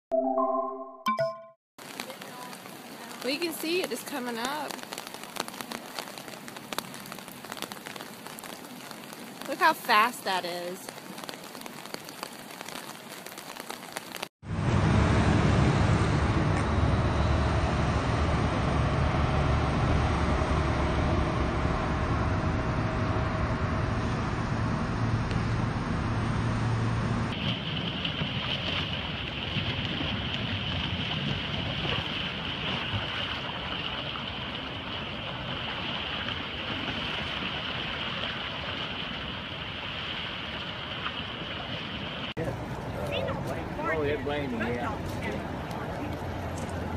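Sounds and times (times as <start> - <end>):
light rain patter: 1.8 - 14.3, 27.3 - 46.9
floodwater rushing: 1.8 - 14.6, 26.8 - 46.9.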